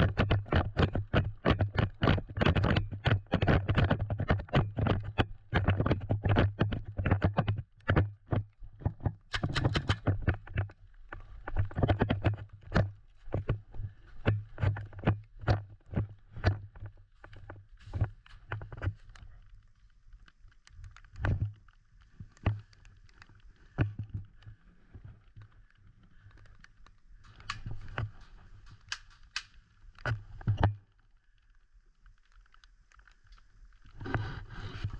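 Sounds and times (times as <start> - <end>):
footsteps walking: 11.1 - 19.9, 27.2 - 29.5.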